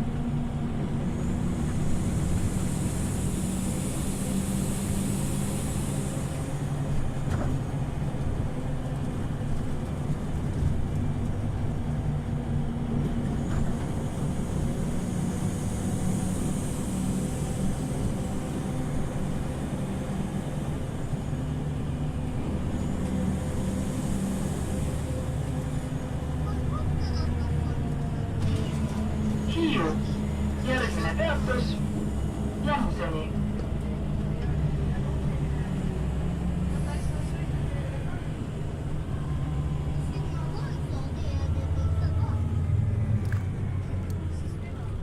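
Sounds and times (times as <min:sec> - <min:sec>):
bus engine drone: 0:00.0 - 0:45.0
road noise: 0:00.0 - 0:45.0.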